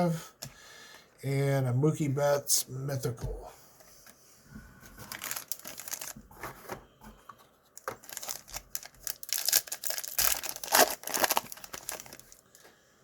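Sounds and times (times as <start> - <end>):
foil wrapper tearing and crinkling: 5.1 - 6.2, 7.8 - 12.6.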